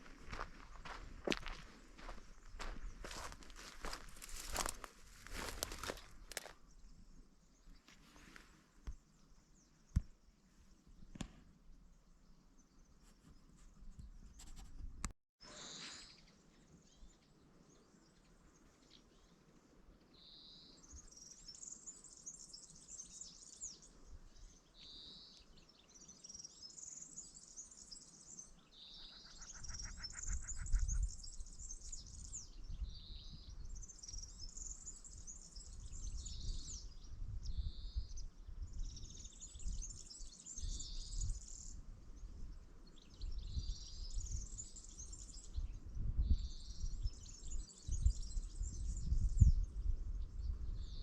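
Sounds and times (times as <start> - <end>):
songbird singing trilling phrase: 28.6 - 41.8.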